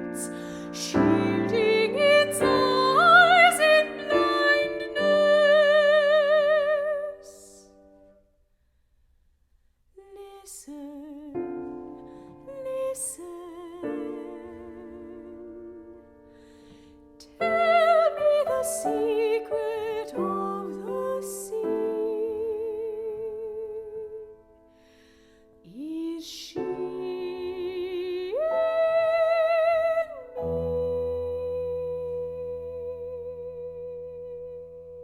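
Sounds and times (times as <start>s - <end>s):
piano accompaniment: 0.0s - 7.2s, 11.3s - 25.0s, 25.8s - 35.0s
soprano singing: 0.0s - 8.1s, 10.0s - 24.6s, 25.6s - 35.0s
singer breathing: 0.3s - 0.8s, 16.3s - 17.2s, 24.7s - 25.6s.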